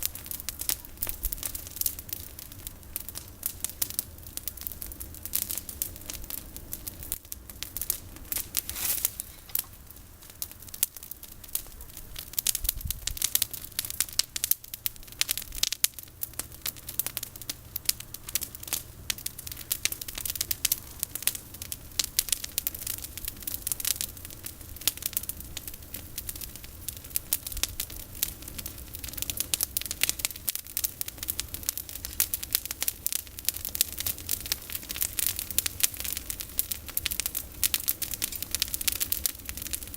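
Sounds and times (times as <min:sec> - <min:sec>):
campfire crackling and popping: 0:00.0 - 0:39.9
low fire rumble: 0:00.0 - 0:39.9.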